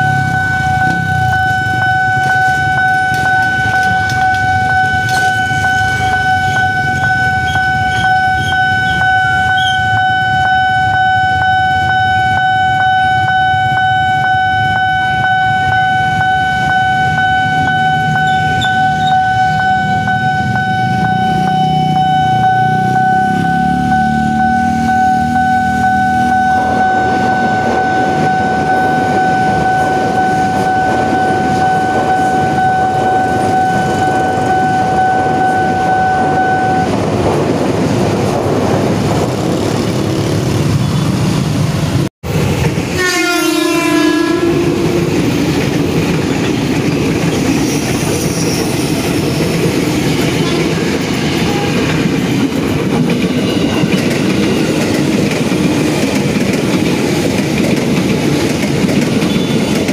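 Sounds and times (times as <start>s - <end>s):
long steady warning tone: 0.0s - 37.0s
electric train clattering past: 0.0s - 59.9s
train running close by: 0.0s - 59.9s.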